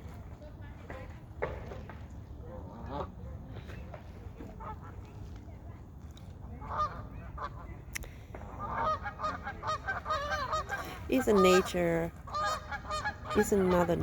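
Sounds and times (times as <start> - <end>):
geese and gulls calling: 2.4 - 5.3, 6.4 - 14.0.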